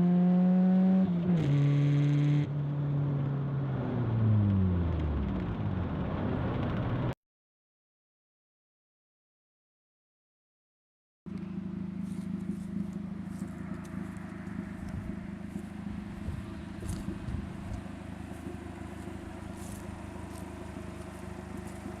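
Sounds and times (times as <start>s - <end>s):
car engine running steadily: 11.3s - 22.0s.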